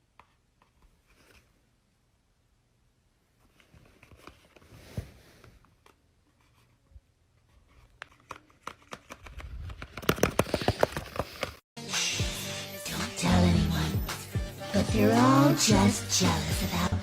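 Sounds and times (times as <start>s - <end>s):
paper clicks and crinkling: 7.5s - 11.6s.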